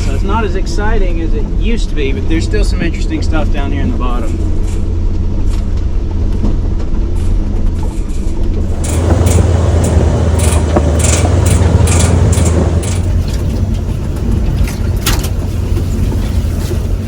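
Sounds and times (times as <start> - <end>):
rattles and knocks: 5.7 - 17.0
tow truck engine rumbling: 8.4 - 17.0.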